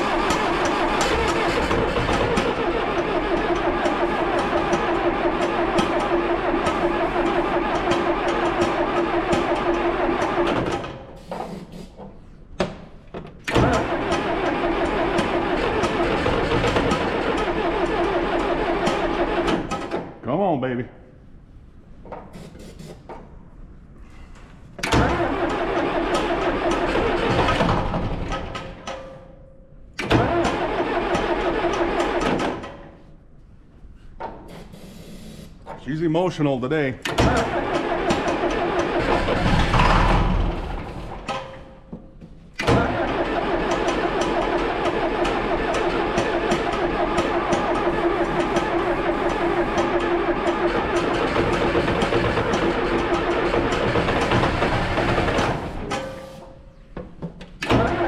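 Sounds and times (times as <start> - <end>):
starter motor whine: 0.0 - 10.8, 13.5 - 19.9, 42.6 - 56.0
diesel engine cranking: 0.0 - 11.1, 13.4 - 20.2, 24.8 - 28.9, 30.0 - 33.0, 37.0 - 56.2, 57.5 - 58.0.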